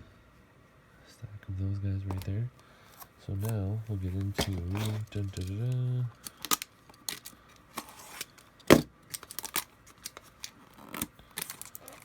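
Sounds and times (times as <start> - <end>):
trading cards rustling: 2.9 - 12.0.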